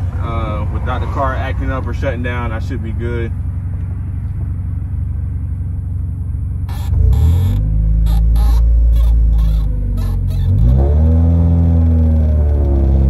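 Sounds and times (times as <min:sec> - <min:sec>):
car engine idling and revving: 0:00.0 - 0:13.0
short clicks or scrapes: 0:06.7 - 0:10.9.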